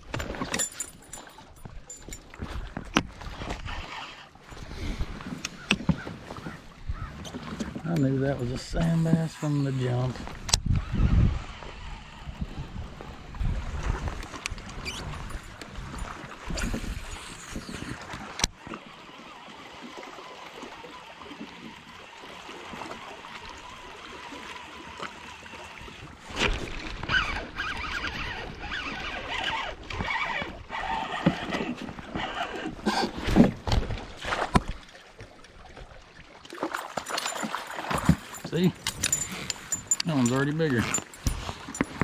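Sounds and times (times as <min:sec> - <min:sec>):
water washing: 0:36.5 - 0:42.0
gear knocking against kayak hull: 0:36.9 - 0:42.0.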